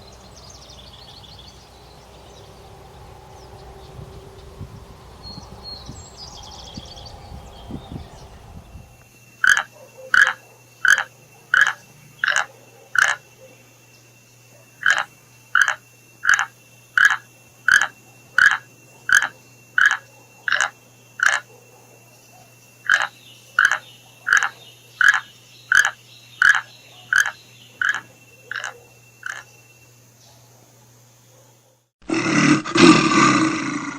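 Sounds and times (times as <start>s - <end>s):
high bird-like trill: 0.0s - 9.6s.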